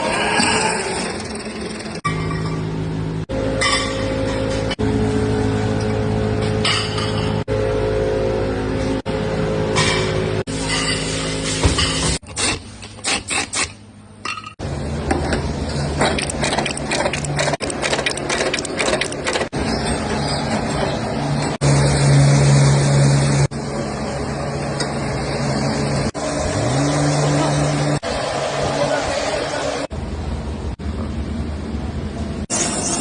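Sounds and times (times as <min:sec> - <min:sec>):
machinery rattling and knocking: 0:15.9 - 0:21.6.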